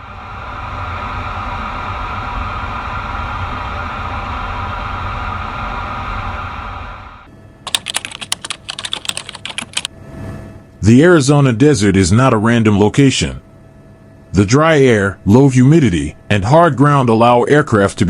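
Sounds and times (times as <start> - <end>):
steady droning hum: 0.0 - 18.0
keyboard typing clicks: 7.7 - 9.9.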